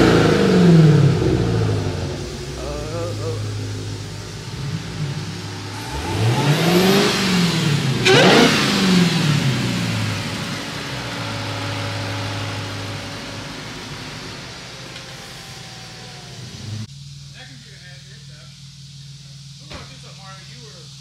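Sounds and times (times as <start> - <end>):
car engine revving: 0.0 - 17.2
car engine idling: 0.0 - 21.0.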